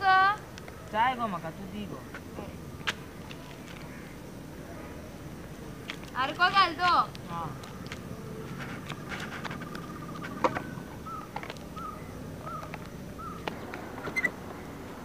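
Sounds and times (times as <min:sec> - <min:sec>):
bird chirping: 0:06.9 - 0:14.9.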